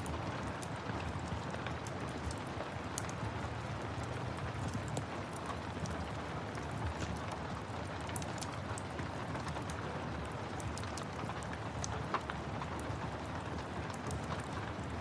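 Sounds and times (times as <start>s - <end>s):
steady rain: 0.0s - 15.0s
wood fire crackling: 0.0s - 15.0s.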